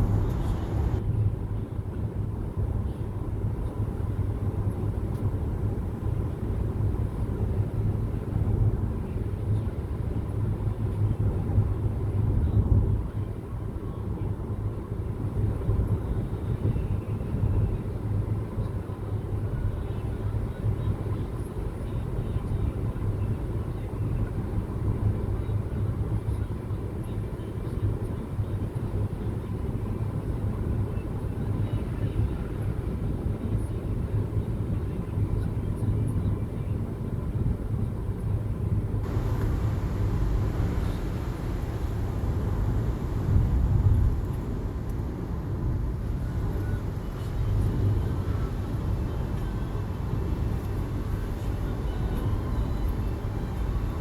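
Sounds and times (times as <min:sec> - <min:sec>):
car driving rumble: 0:00.0 - 0:01.0, 0:39.0 - 0:54.0.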